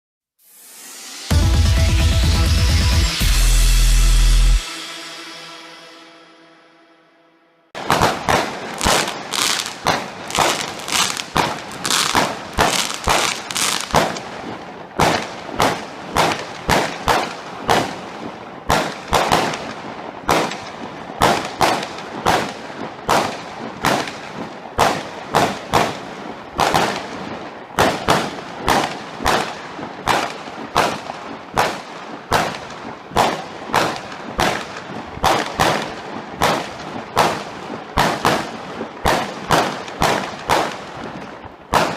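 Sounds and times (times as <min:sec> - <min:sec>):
fireworks bangs: 0:07.8 - 0:41.9
fireworks crackling: 0:07.8 - 0:41.9.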